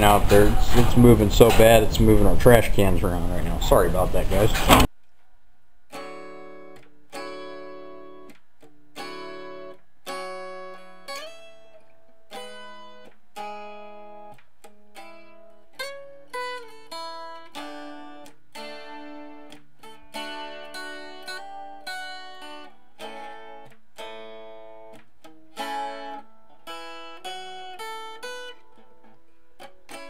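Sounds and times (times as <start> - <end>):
acoustic guitar chords: 0.0 - 4.9.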